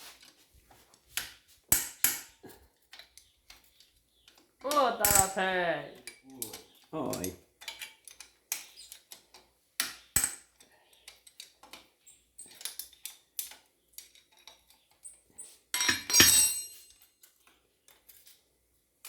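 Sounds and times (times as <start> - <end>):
metal tools clinking: 4.7 - 9.0, 15.8 - 17.1.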